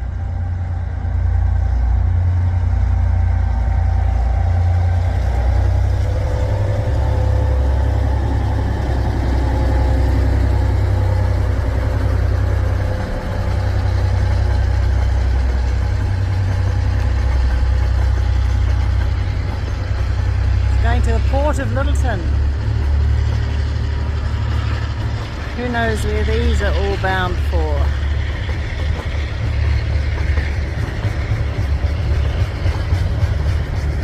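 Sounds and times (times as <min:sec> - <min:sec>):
freight train rumbling past: 0:00.0 - 0:34.0.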